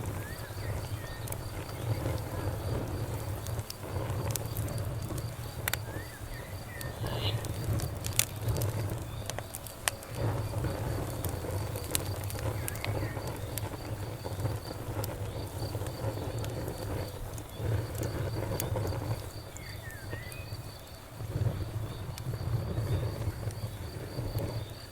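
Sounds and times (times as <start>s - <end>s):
campfire crackling and popping: 0.0s - 24.9s
insect chirping: 0.0s - 24.9s.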